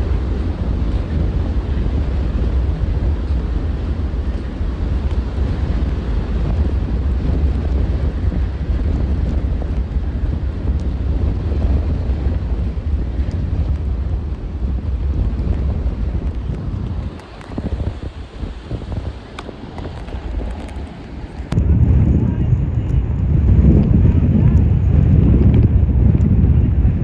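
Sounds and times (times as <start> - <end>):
storm wind buffeting microphone: 0.0 - 27.0.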